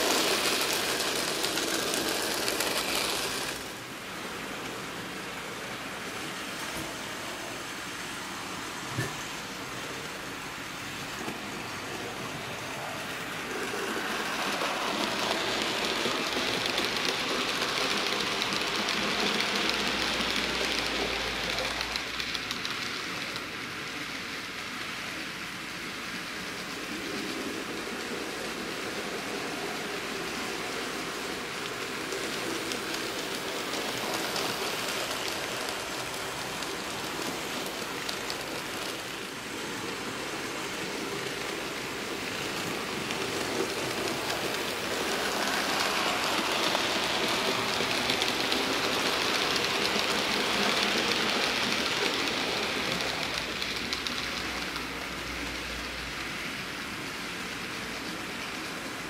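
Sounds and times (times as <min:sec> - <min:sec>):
train rushing noise: 0:00.0 - 0:59.0.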